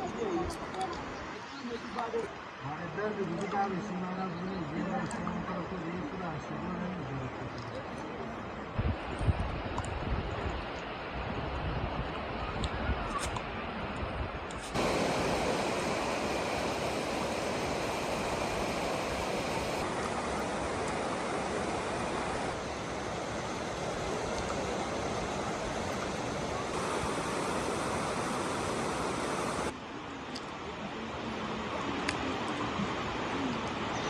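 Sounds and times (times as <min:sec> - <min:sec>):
heavy rain pouring: 0:14.8 - 0:29.7.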